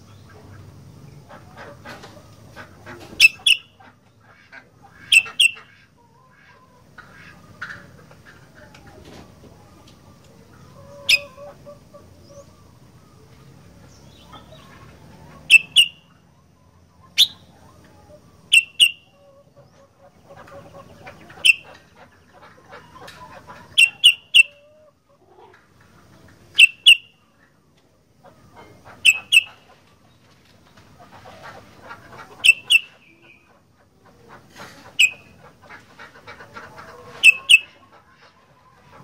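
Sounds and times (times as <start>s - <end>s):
soft bird twittering: 15.4s - 16.1s, 17.0s - 17.5s.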